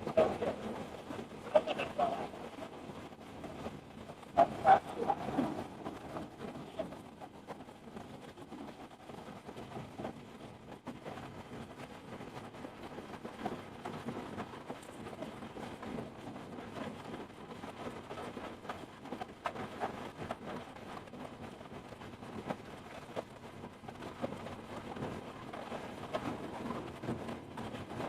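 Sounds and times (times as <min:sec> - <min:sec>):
heavy rain falling: 0:00.0 - 0:03.7, 0:04.3 - 0:07.2.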